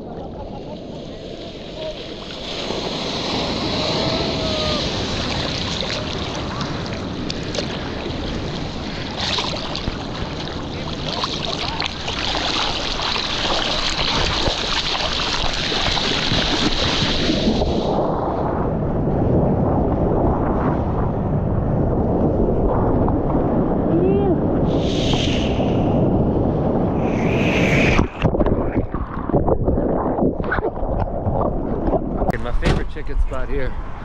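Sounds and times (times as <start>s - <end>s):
sea water rushing and splashing: 0.0s - 18.6s
wind buffeting microphone: 0.0s - 34.0s.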